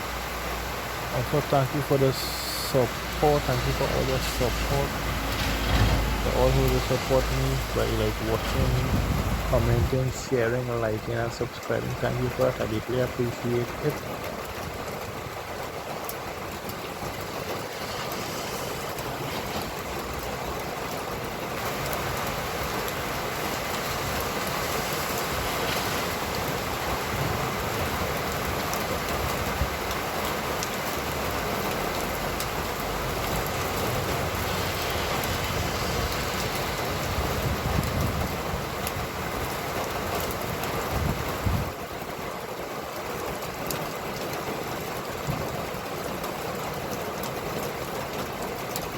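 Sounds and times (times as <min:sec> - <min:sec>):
rain falling: 0:00.0 - 0:48.9
tyres hissing on wet road: 0:00.0 - 0:48.9
passing traffic rumble: 0:00.3 - 0:14.0, 0:16.5 - 0:28.6, 0:31.6 - 0:40.9.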